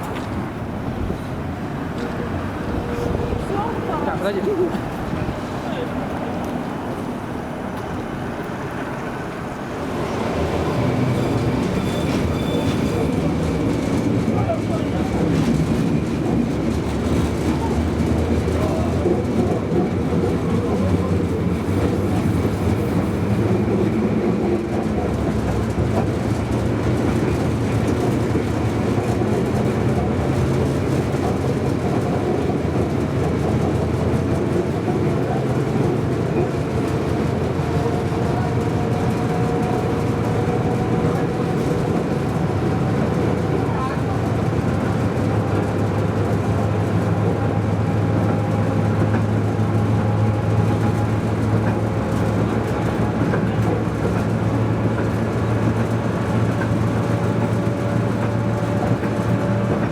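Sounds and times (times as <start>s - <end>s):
tram wheels rumbling on rails: 0.0s - 59.9s.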